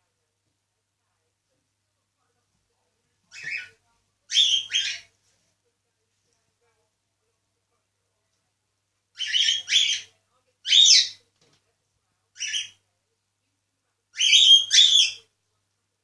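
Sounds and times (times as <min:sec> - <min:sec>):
cockatiel chirping: 0:03.3 - 0:03.7, 0:04.3 - 0:05.1, 0:09.2 - 0:11.2, 0:12.4 - 0:12.8, 0:14.2 - 0:15.3.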